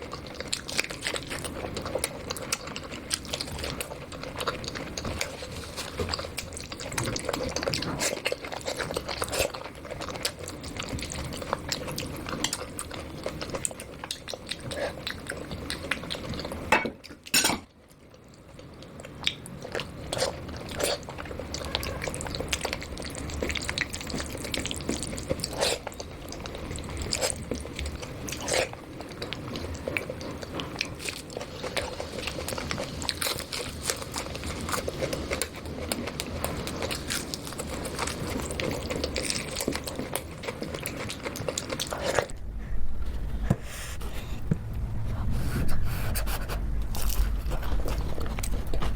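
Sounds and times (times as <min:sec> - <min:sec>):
wet mixing and chewing: 0:00.0 - 0:42.4, 0:45.2 - 0:48.9.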